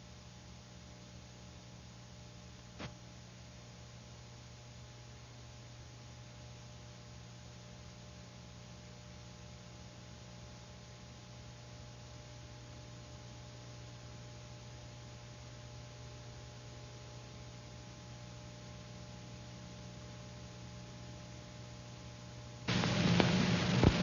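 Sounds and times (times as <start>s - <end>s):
film soundtrack hiss: 0.0s - 24.0s
loud burst of noise: 22.7s - 24.0s
low hum: 22.7s - 24.0s.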